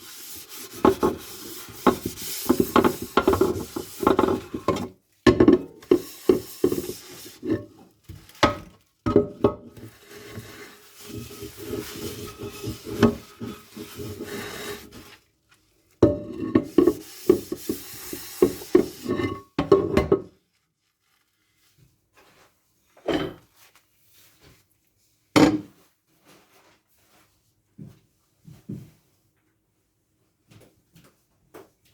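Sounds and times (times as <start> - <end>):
scrubbing dishes: 0.0 - 15.2, 16.0 - 20.3
dishware set down knocks: 25.4 - 25.7.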